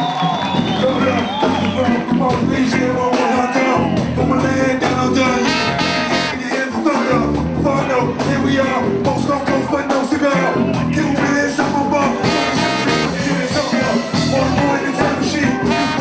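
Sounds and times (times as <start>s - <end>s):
drums and percussion groove: 0.0s - 16.0s
voices singing: 0.9s - 16.0s
pitched instruments: 5.4s - 6.6s, 12.2s - 14.6s, 15.7s - 16.0s.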